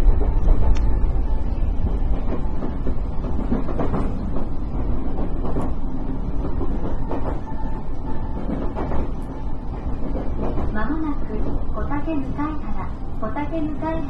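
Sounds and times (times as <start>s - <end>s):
subway train wheels rumbling: 0.0s - 14.0s.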